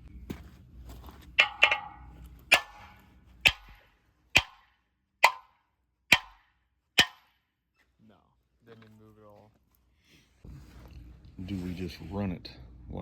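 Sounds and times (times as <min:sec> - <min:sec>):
hammer striking steel pin: 0:01.4 - 0:07.4.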